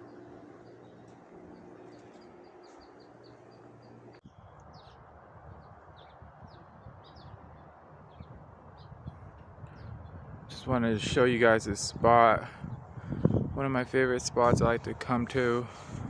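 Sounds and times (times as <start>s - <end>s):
low engine-like hum: 0.0s - 4.7s
small birds chirping: 0.0s - 10.3s
low rumbling noise: 0.0s - 16.0s.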